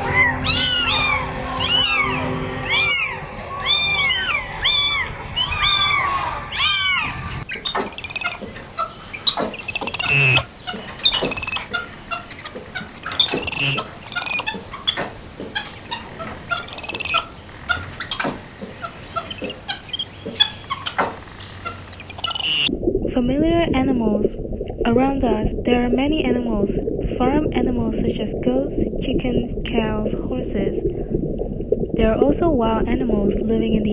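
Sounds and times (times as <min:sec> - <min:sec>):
cats meowing: 0:00.0 - 0:07.5
poultry squawks and clicks: 0:00.0 - 0:22.7.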